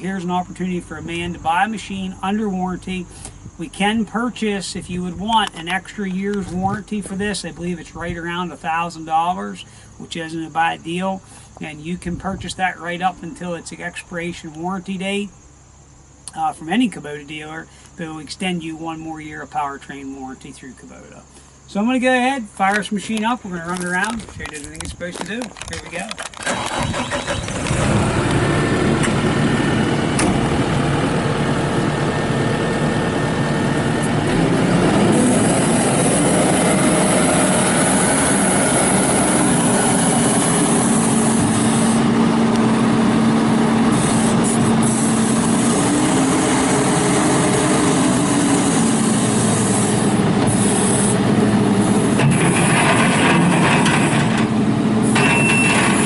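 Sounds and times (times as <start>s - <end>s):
diesel engine starting and running: 25.2s - 56.0s
backup alarm beeping: 55.2s - 55.8s.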